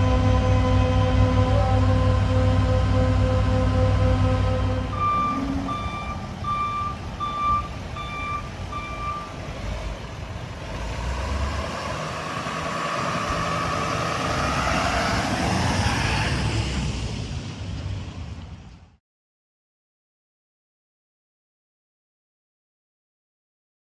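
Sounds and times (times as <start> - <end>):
truck reversing alarm beeping: 0.0 - 9.4
low engine rumble: 0.0 - 19.0
rushing noise: 0.0 - 19.0.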